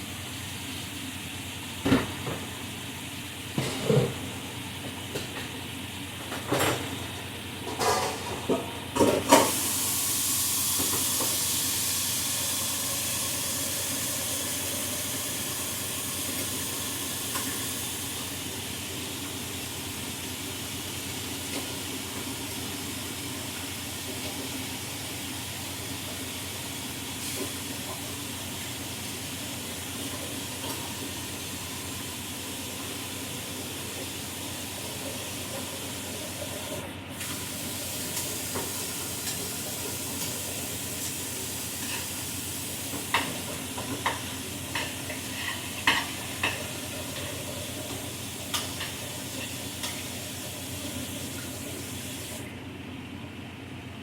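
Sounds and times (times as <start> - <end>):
food sizzling in a pan: 9.3 - 52.4.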